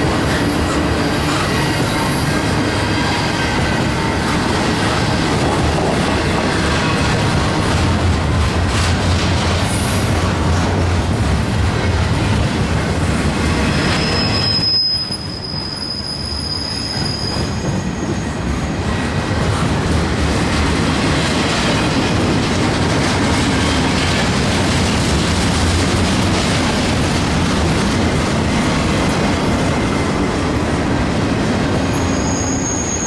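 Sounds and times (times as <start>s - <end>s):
freight train wheels rumbling: 0.0s - 33.0s
high wheel squeal: 0.2s - 5.2s, 13.5s - 18.9s, 31.8s - 33.0s.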